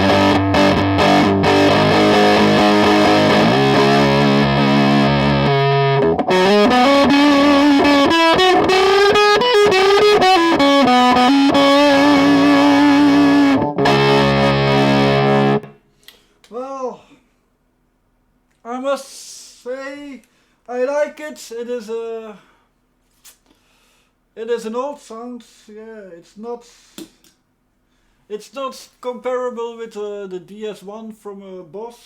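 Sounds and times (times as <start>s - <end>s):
distorted electric guitar: 0.0s - 15.8s.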